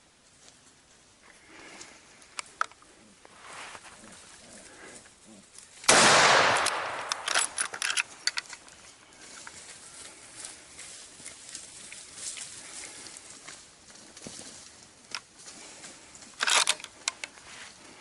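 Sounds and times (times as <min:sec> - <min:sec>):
sharp cracks: 0:05.8 - 0:08.7
rapid gunfire: 0:05.9 - 0:07.2.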